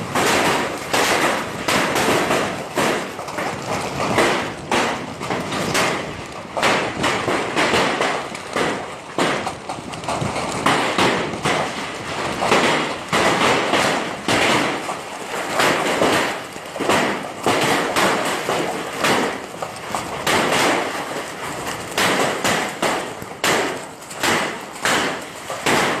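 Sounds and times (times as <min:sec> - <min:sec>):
hailstones clattering: 0:00.0 - 0:26.0.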